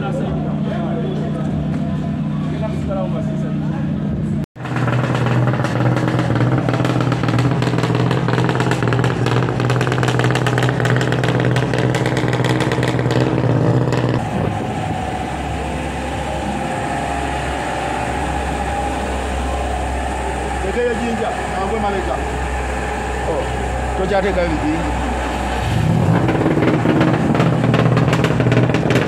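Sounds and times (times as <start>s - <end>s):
rally car engine running loudly: 0.0s - 29.0s
dense crackle: 26.0s - 29.0s.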